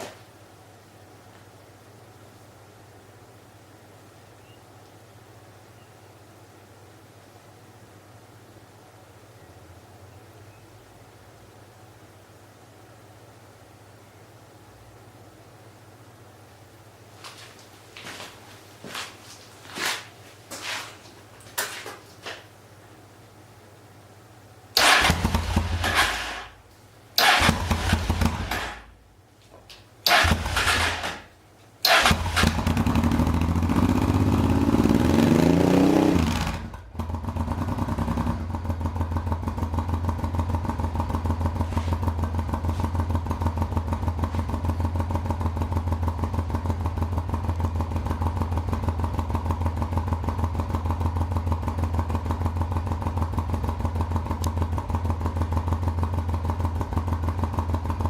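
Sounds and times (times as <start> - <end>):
motorcycle engine cranking: 24.8 - 26.6, 27.2 - 28.9, 30.0 - 34.1
motorcycle engine idling: 27.2 - 29.0, 30.0 - 35.2, 36.4 - 58.0.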